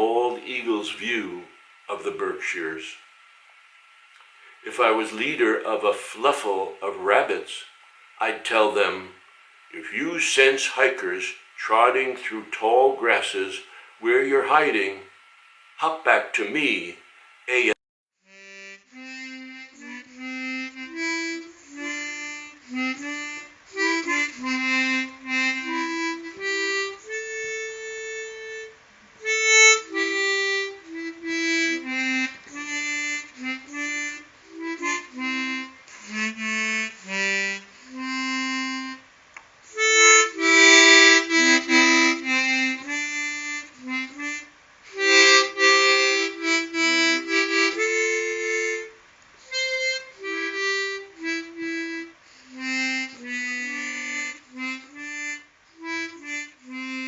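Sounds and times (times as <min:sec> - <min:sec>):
harmonica melody: 0:17.5 - 0:57.0.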